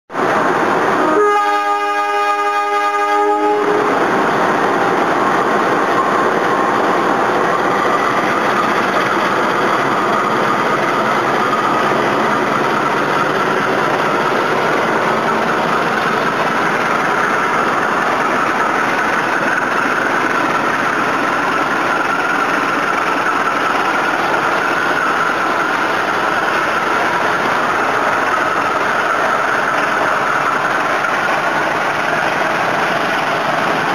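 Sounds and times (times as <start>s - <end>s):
train running noise: 0.1s - 33.9s
locomotive horn: 1.0s - 4.0s.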